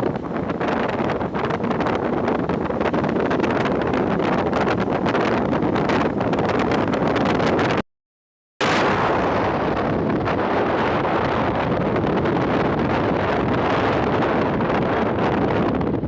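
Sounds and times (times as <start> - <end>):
wind rushing over microphone: 0.0 - 7.8, 8.6 - 16.0.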